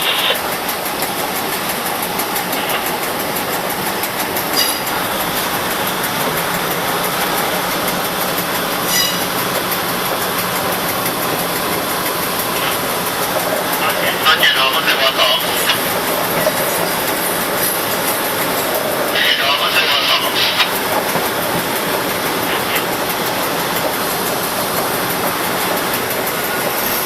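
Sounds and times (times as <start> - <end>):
train wheels rumbling on rails: 0.0 - 27.0
high squeaks: 4.5 - 5.0, 8.8 - 9.4.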